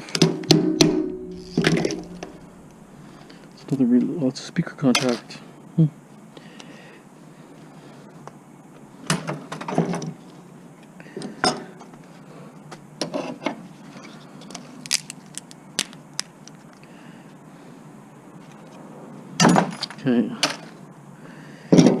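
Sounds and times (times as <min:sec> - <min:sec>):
metal parts and tools clattering: 0:00.8 - 0:03.6.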